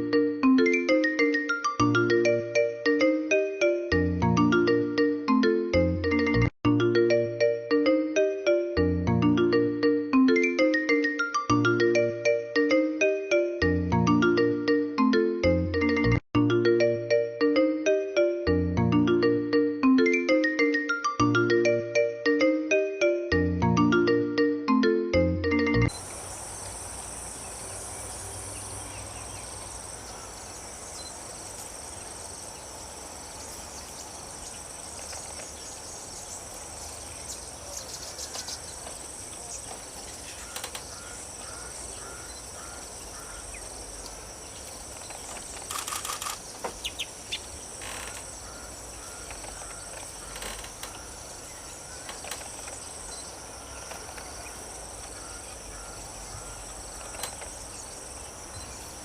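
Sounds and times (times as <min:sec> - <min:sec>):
short insect chirps: 0:25.9 - 0:49.7
insects trilling: 0:25.9 - 0:59.0.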